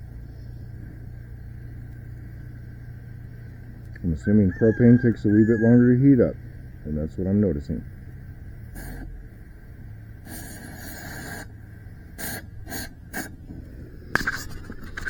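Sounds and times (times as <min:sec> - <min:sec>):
cutting torch burning: 0:08.3 - 0:15.0
knocks and scrapes: 0:14.1 - 0:15.0.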